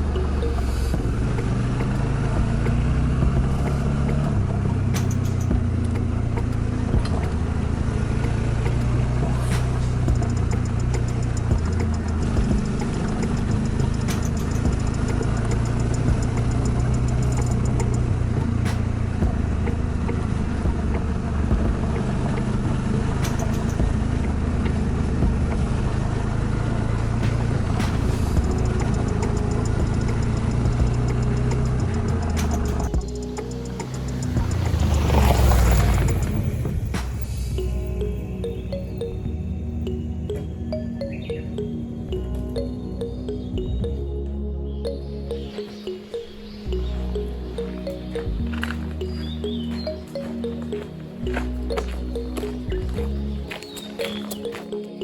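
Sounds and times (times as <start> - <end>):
motorcycle engine running: 0.0 - 37.3.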